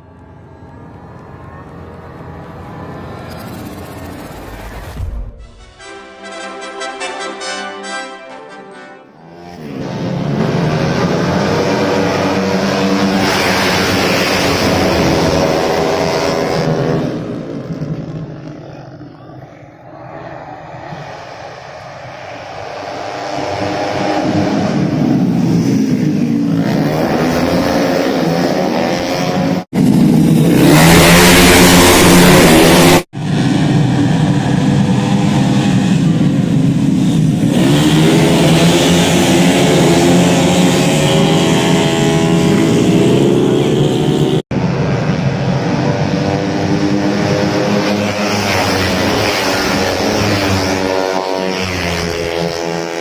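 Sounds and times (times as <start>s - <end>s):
rushing noise: 0.0s - 7.4s, 19.4s - 26.9s
racing scooters at high revs: 9.2s - 53.0s.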